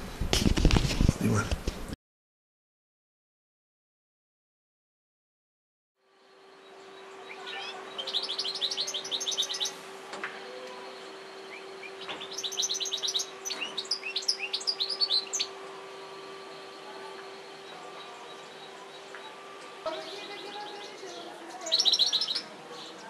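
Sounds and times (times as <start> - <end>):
steady low hum: 6.0 - 23.0
goldfinch twittering: 6.8 - 9.8, 10.9 - 23.0.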